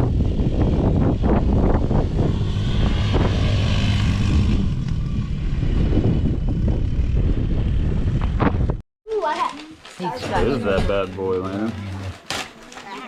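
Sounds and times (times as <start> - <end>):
wind rumbling on microphone: 0.0 - 8.8.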